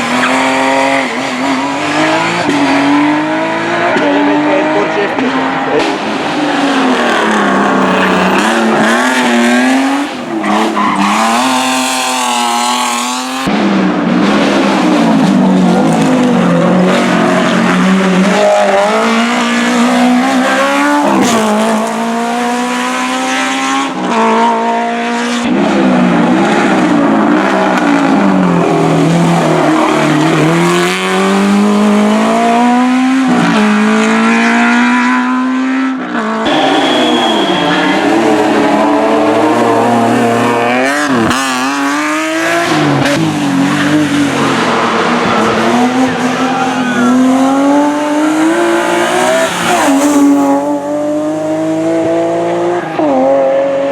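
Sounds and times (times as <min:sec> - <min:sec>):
race car engines accelerating: 0:00.0 - 0:53.9.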